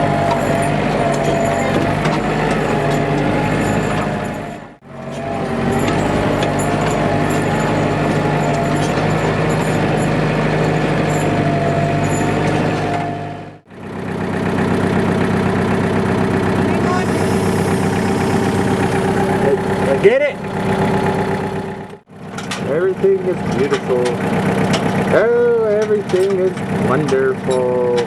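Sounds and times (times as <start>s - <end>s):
wavering high whine: 0.0s - 13.6s, 16.8s - 20.1s
machinery engine humming: 0.0s - 28.0s.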